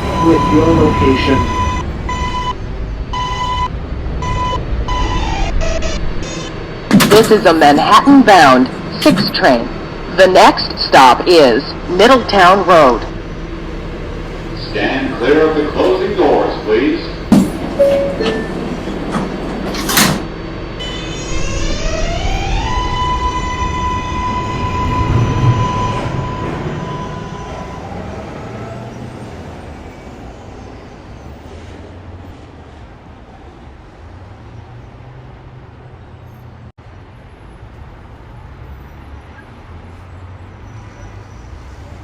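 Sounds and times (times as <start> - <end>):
train propulsion whine: 0.0 - 34.2
train doors closing with a bang: 17.2 - 28.4.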